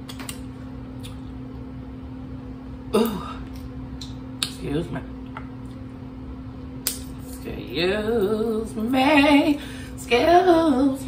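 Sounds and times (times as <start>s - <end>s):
woman singing wordless tune: 7.3s - 11.0s.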